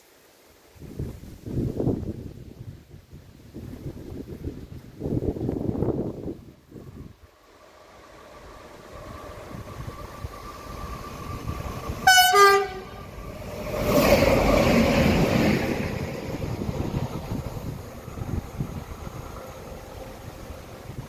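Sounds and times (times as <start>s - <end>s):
train rushing past: 6.7s - 21.0s
train horn blast: 12.0s - 13.2s.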